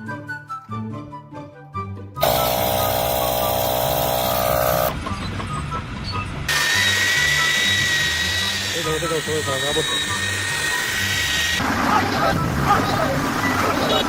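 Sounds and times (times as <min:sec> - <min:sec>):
machine with high whine: 0:02.2 - 0:05.0
loud machinery noise: 0:02.2 - 0:05.5, 0:06.4 - 0:14.0.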